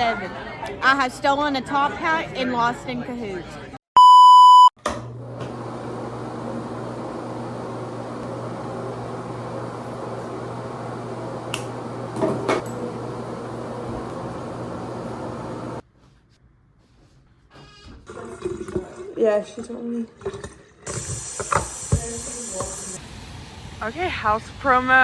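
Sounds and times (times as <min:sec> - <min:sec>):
short electronic beep: 0:04.0 - 0:04.7
low mechanical hum: 0:04.9 - 0:15.8.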